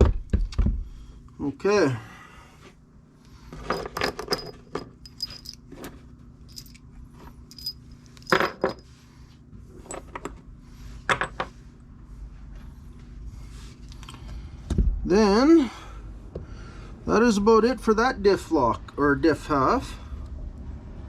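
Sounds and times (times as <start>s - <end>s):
small metal parts clinking: 3.6s - 6.9s, 7.5s - 8.8s.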